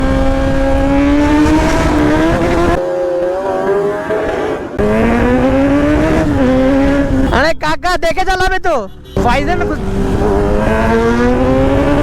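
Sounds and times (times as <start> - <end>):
motorcycle engine revving high: 0.0 - 7.4, 9.2 - 12.0.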